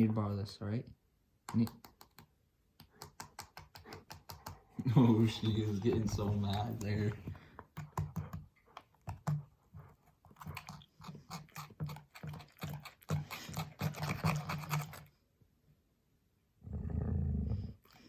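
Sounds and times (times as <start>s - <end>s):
dog chewing and gnawing: 3.0s - 15.1s
dog growling: 16.6s - 18.0s.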